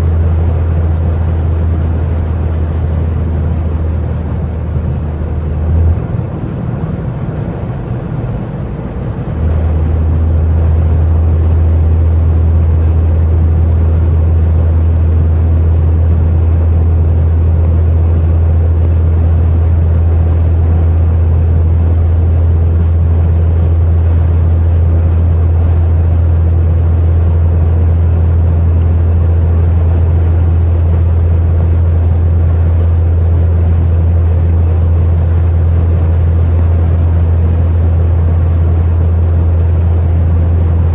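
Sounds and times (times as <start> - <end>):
car exhaust droning: 0.0 - 40.9.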